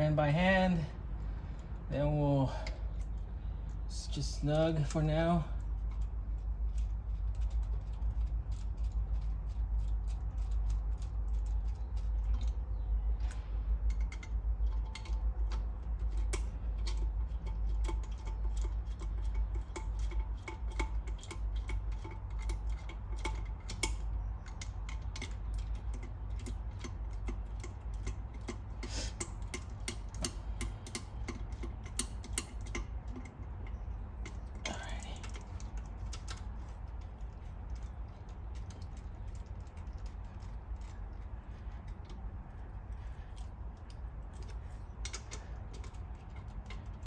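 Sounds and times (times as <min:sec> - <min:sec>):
low hum: 0:00.0 - 0:47.0
socket ratchet clicking: 0:13.9 - 0:41.0, 0:43.4 - 0:47.0.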